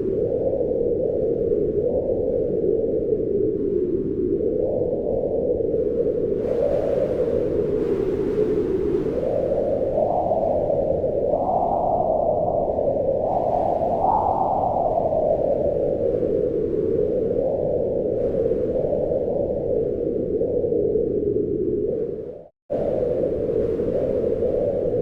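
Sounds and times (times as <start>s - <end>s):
wind rushing: 6.4s - 25.0s.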